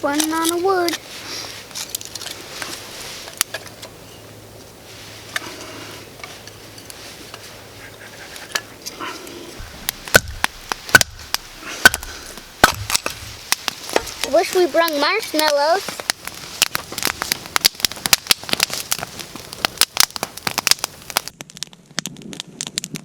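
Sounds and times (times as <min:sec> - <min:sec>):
wood fire crackling: 0:00.0 - 0:23.0
sharp fire pops: 0:09.6 - 0:23.0.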